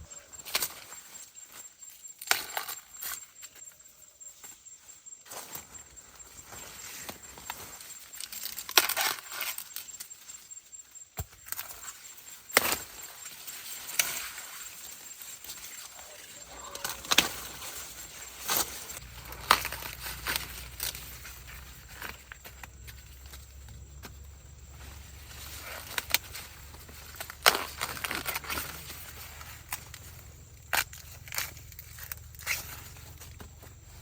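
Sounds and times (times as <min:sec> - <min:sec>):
corn ears snapping off stalks: 0:02.2 - 0:03.2, 0:07.0 - 0:10.0, 0:11.2 - 0:14.7, 0:15.4 - 0:24.4, 0:25.4 - 0:33.8
dry leaves rustling: 0:12.7 - 0:23.8.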